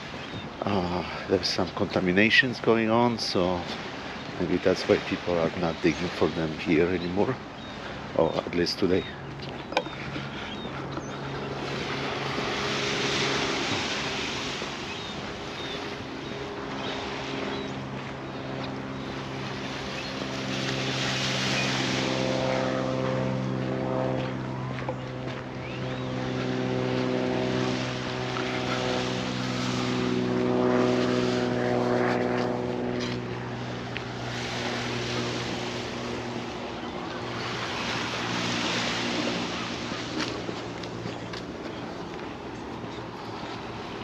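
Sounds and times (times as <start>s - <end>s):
engine droning: 0.0s - 44.0s
rushing noise: 11.1s - 18.4s.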